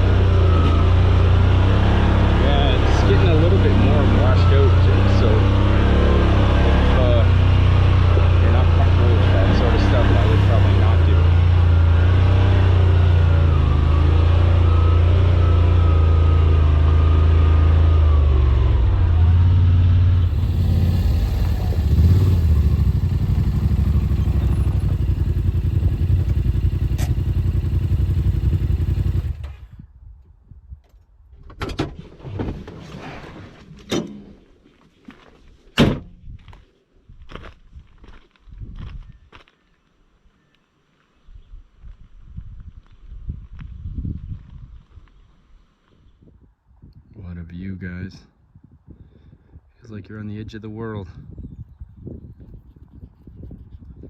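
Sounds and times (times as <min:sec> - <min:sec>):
utv engine running under load: 0:18.1 - 0:29.8.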